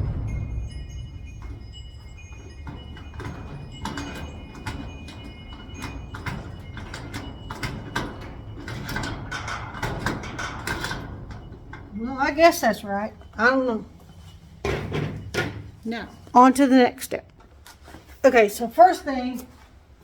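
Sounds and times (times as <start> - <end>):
metal door rattling: 0.0 - 17.6
knocks and taps on metal: 1.4 - 11.9.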